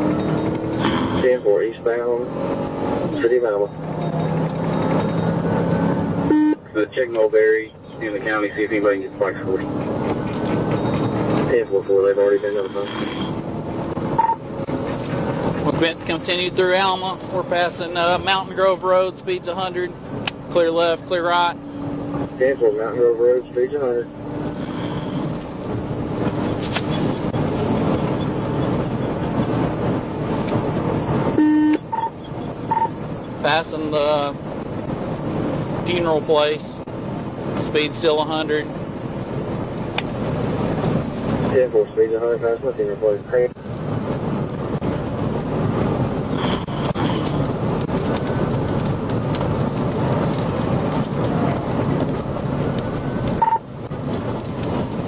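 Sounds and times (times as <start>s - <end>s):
wind and road noise in car: 0.0s - 55.0s
short beep: 6.3s - 6.7s, 14.2s - 14.4s, 31.4s - 32.1s.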